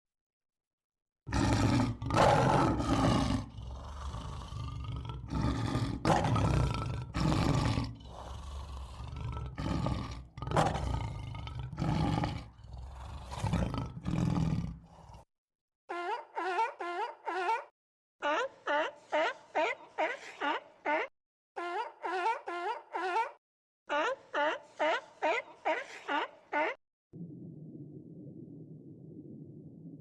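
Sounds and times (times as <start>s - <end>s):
large animal roaring: 1.3s - 15.3s.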